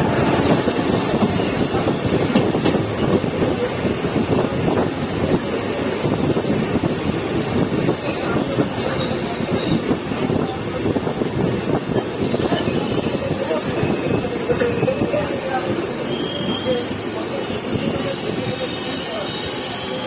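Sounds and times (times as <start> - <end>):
train wheels rattling on rail: 0.0 - 20.0
high wavering wheel squeal: 12.6 - 20.0.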